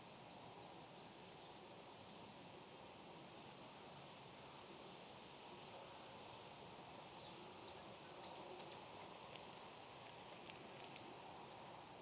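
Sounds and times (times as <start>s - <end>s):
faint outdoor ambience: 0.0s - 12.0s
faint ticks: 9.0s - 11.3s.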